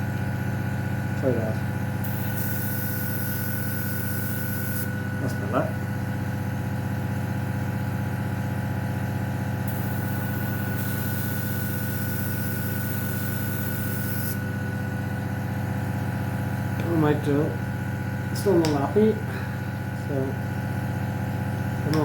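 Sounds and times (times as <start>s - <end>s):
compressor humming: 0.0s - 22.0s
airbrush spraying hiss: 2.0s - 4.9s, 9.7s - 14.4s.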